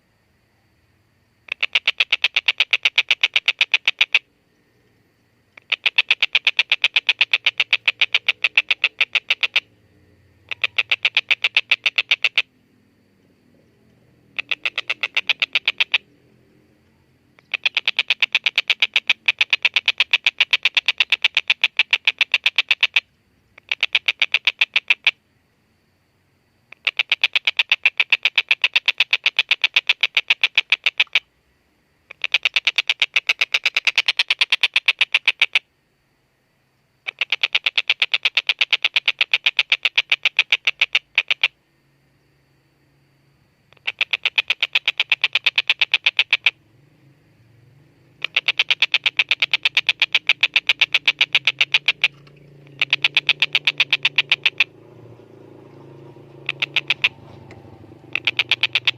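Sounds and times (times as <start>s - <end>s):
kingfisher cackling call: 5.6s - 9.7s, 10.4s - 12.6s, 14.3s - 16.2s, 17.4s - 23.0s, 43.7s - 46.6s, 48.0s - 58.9s.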